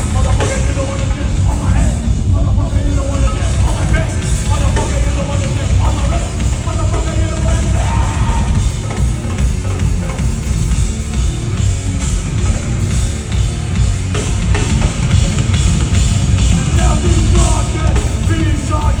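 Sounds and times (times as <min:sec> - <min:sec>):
heavy metal band playing: 0:00.0 - 0:19.0
pounding drums: 0:00.0 - 0:19.0.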